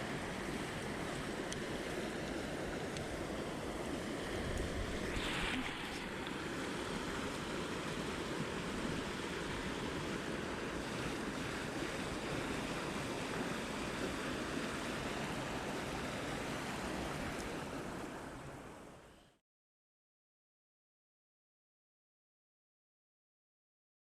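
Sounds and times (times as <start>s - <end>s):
mountain stream rushing: 0.0s - 19.0s.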